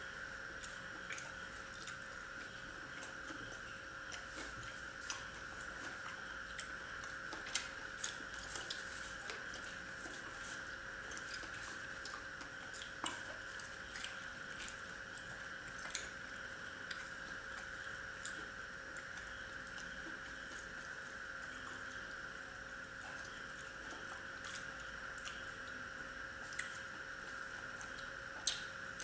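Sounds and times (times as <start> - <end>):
background hum: 0.0 - 29.0
people chewing: 0.6 - 22.2.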